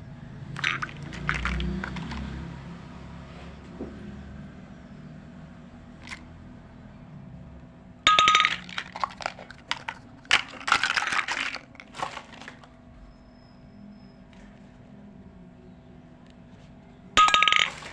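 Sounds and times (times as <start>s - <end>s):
toy pieces clinking and rattling: 0.6s - 2.4s, 6.0s - 6.2s, 8.1s - 12.7s, 17.2s - 17.9s.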